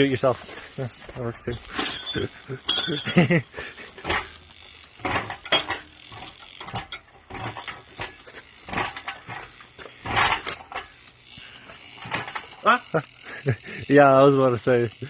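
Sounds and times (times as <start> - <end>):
metal tools clanking: 1.4 - 4.3, 5.0 - 8.1.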